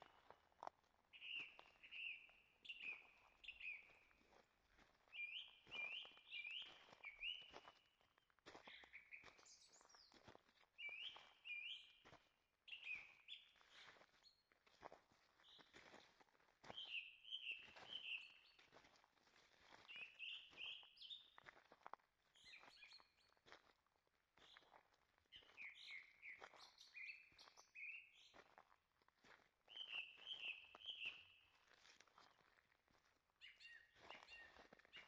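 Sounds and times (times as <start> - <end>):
footsteps on forest trail: 0.0 - 23.8, 24.4 - 35.0
faint songbird chirping: 1.2 - 4.2, 5.1 - 7.8, 8.6 - 13.9, 16.7 - 18.7, 19.8 - 21.4, 22.4 - 23.4, 25.3 - 28.5, 29.7 - 31.5, 33.4 - 35.0.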